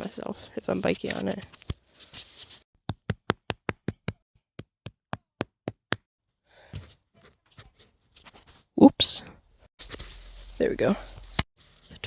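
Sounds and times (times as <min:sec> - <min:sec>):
soft rustle: 0:00.0 - 0:02.6, 0:09.8 - 0:12.0.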